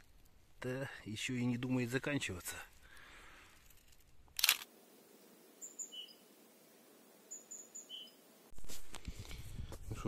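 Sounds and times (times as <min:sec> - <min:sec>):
small birds chirping: 0:05.2 - 0:06.3, 0:07.2 - 0:08.3.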